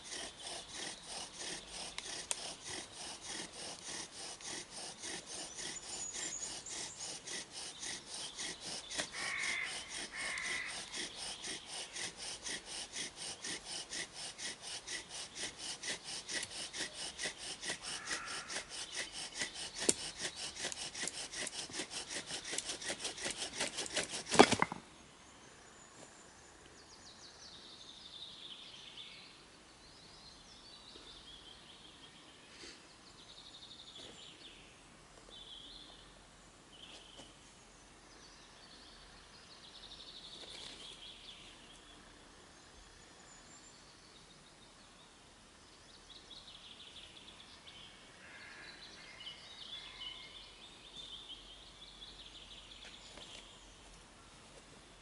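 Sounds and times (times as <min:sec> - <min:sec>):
woodland birds singing: 0:00.0 - 0:55.0.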